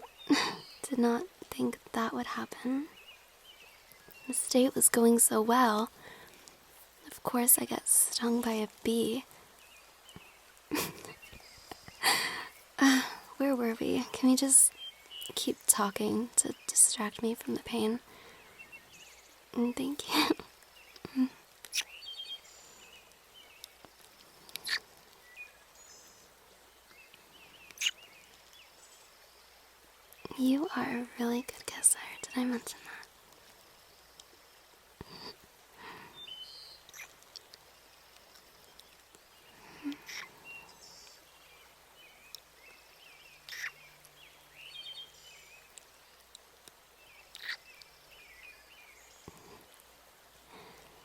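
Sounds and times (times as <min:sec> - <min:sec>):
faint bird chirps: 0:00.0 - 0:05.9, 0:07.2 - 0:33.1, 0:33.7 - 0:46.2, 0:46.9 - 0:49.8
mouth kiss sounds: 0:47.4 - 0:47.6.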